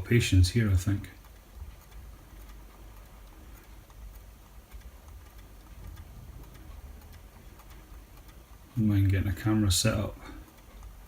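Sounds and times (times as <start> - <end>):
faint ticks: 0.0 - 11.0
low steady hum: 0.0 - 11.0.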